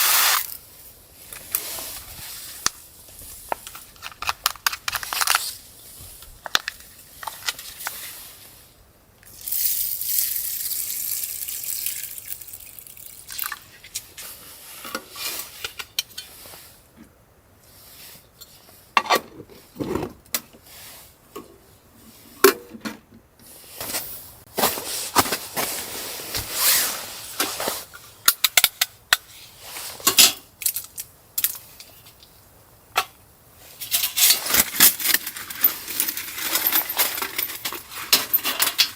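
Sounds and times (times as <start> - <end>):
steady hiss: 0.0 - 4.0, 5.2 - 18.9, 23.4 - 28.3
small hard objects clicking: 9.2 - 13.6.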